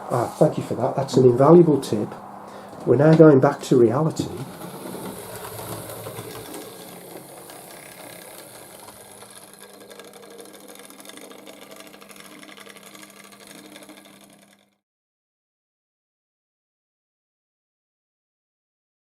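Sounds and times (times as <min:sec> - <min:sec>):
fine rapid clicking: 0:03.1 - 0:14.8
toy train motor hum: 0:03.6 - 0:14.8.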